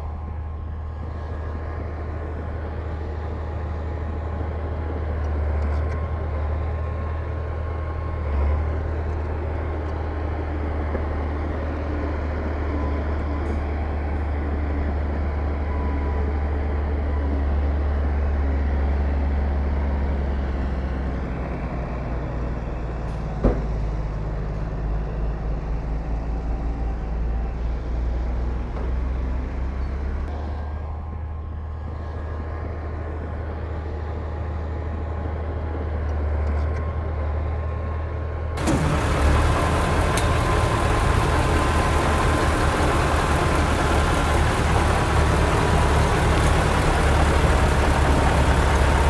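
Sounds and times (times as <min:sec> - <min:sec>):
heavy diesel machinery running: 0:37.5 - 0:49.0.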